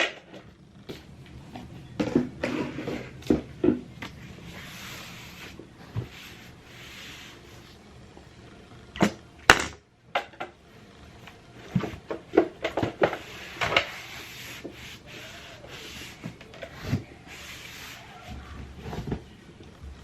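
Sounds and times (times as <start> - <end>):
faint rubbing: 4.2 - 7.8, 13.1 - 19.2.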